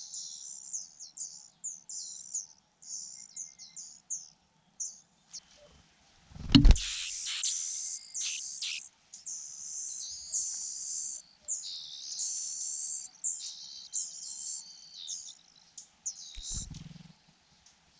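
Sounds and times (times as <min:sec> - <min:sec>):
sharp thump: 0:06.4 - 0:06.9
nestlings chirping: 0:06.6 - 0:08.9, 0:16.3 - 0:17.0.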